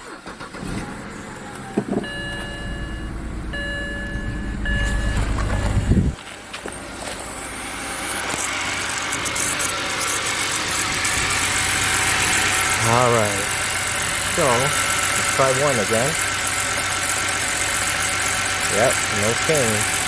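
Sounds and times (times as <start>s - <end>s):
car engine starting and idling: 0.0s - 20.0s
electronic chime tones: 2.1s - 6.2s.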